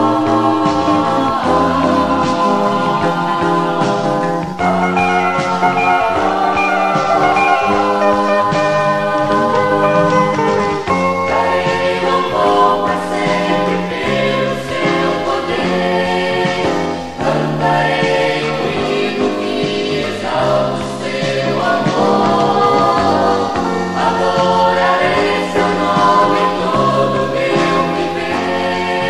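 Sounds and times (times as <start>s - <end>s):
vocal group singing: 0.0s - 29.0s
band playing: 4.6s - 12.2s.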